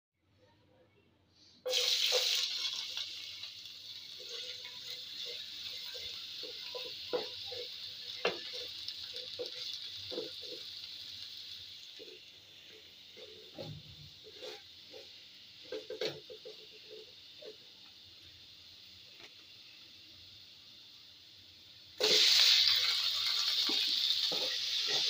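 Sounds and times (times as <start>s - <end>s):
garlic sizzling in hot oil: 1.7s - 25.0s
spatula knocking and scraping pot: 5.2s - 10.7s, 23.6s - 25.0s.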